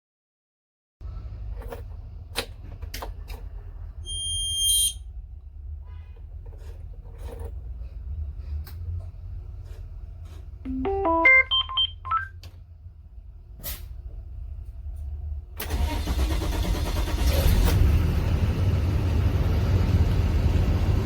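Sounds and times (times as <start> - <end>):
bus engine starting and rumbling: 1.0 - 21.0
rising electronic beeps: 10.7 - 12.3.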